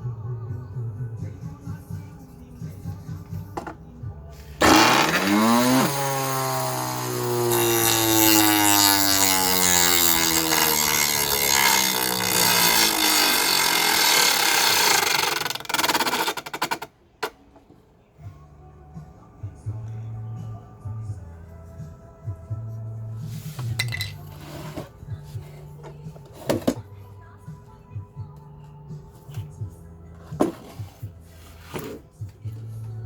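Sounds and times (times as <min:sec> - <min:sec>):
vacuum motor whining: 0:04.6 - 0:15.5.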